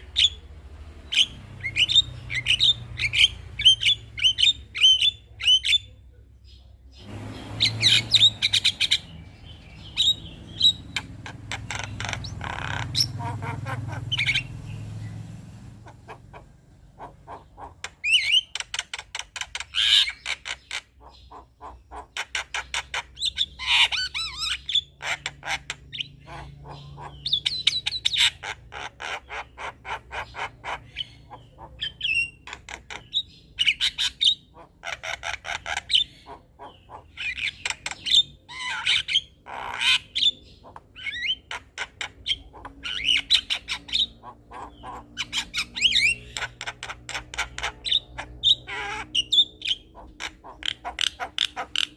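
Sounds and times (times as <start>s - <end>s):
myna chattering: 7.8s - 14.8s, 15.6s - 18.4s.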